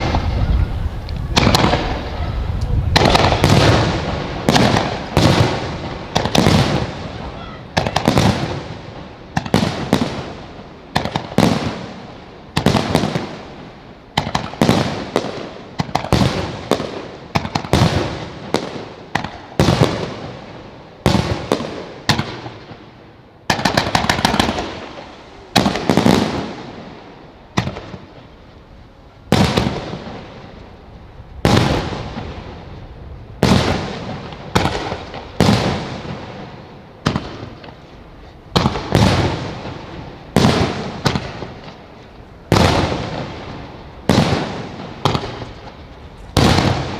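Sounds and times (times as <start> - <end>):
rapid crackling shots: 2.9 - 7.0.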